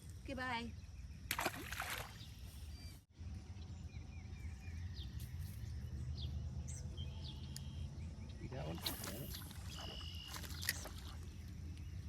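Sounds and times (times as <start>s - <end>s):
bird chirping: 2.1s - 12.0s.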